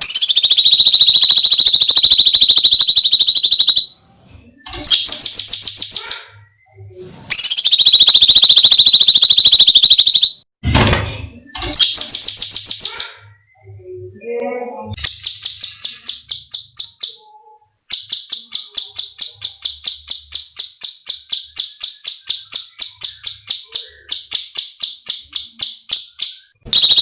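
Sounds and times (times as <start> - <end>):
bird chattering phrases: 0.0 - 3.9, 7.3 - 10.3
songbird screeching trill: 0.0 - 3.9, 7.3 - 10.4.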